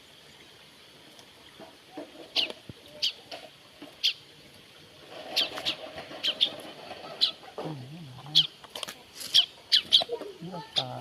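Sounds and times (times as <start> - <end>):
bird chirping: 4.0 - 4.2, 5.3 - 8.6, 9.3 - 11.0.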